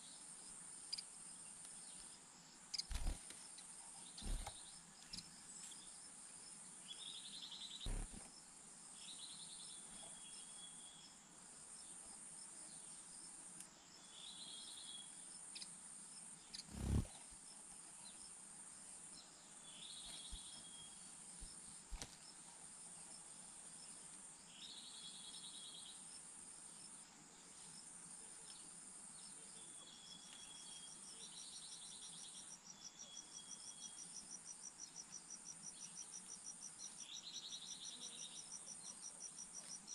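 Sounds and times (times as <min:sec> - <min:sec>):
crickets and insects chirping: 0:02.4 - 0:06.6, 0:16.5 - 0:17.2
fast pulsing chirp: 0:02.8 - 0:03.2, 0:04.2 - 0:04.5, 0:07.9 - 0:08.2, 0:16.6 - 0:17.1
short buzzy chirps: 0:16.6 - 0:17.1.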